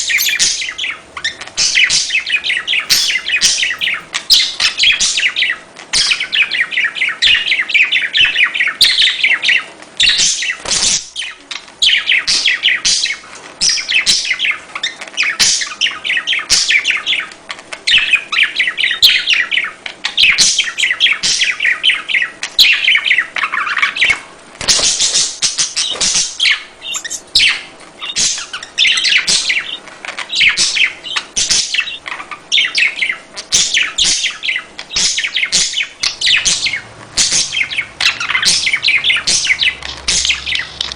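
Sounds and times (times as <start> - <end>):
budgerigars chattering: 0.0 - 4.4, 36.1 - 40.9.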